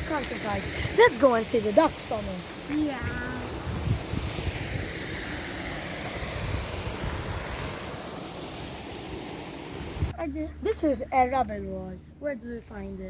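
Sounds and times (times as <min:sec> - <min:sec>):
wind buffeting microphone: 0:00.0 - 0:07.9, 0:09.7 - 0:10.2
steady rushing noise: 0:00.0 - 0:11.5.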